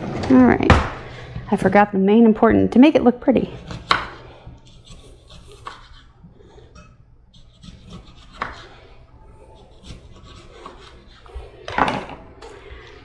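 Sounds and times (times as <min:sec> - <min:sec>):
knife slicing lemon: 0:03.6 - 0:06.1, 0:06.7 - 0:11.6.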